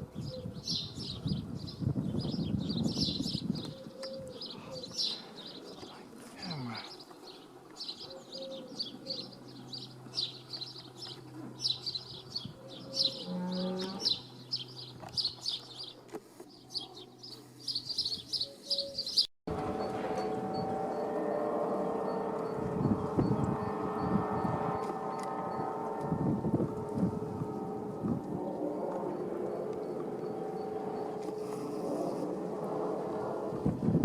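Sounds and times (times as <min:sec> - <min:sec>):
small birds chirping: 0:00.1 - 0:19.3
low rumble: 0:19.5 - 0:34.0.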